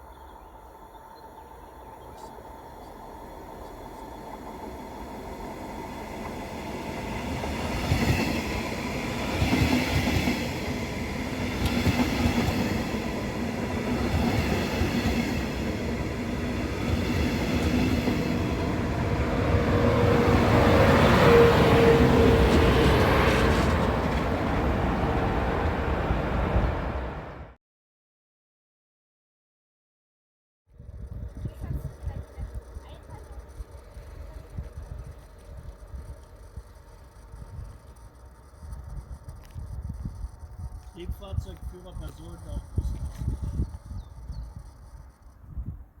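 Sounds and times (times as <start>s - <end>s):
train hum: 0.0s - 27.6s, 30.8s - 46.0s
train wheels clattering on rails: 4.4s - 25.8s.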